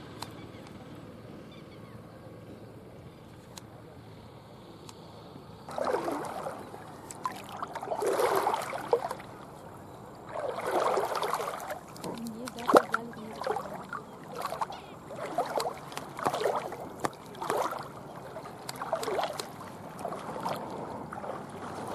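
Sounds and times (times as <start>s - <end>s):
water splashing strokes: 5.6s - 21.9s.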